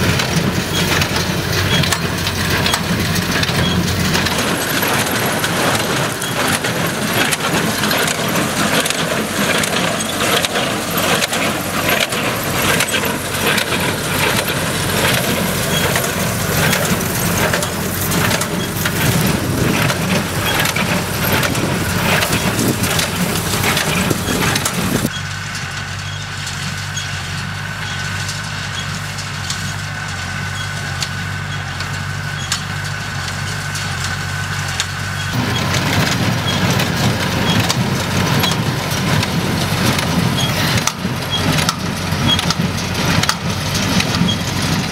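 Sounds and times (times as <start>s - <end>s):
diesel engine: 0.0s - 44.9s
hay baler clattering: 0.0s - 44.9s.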